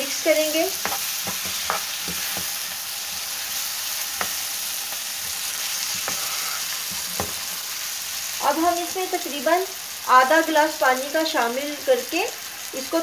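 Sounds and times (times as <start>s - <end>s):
food sizzling in hot oil: 0.0s - 13.0s
spatula scraping pan: 0.7s - 7.8s.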